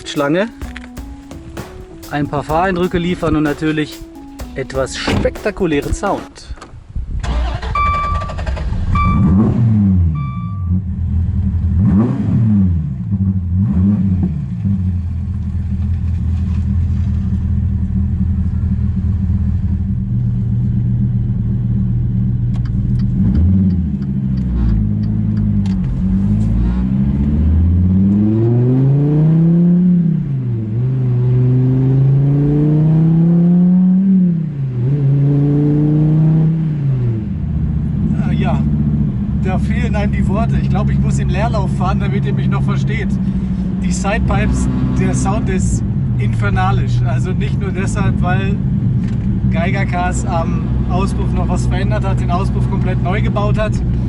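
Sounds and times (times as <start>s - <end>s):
electronic warning beep: 9.0s - 9.4s, 10.1s - 10.8s
sports car engine revving: 11.0s - 15.6s, 17.6s - 41.3s.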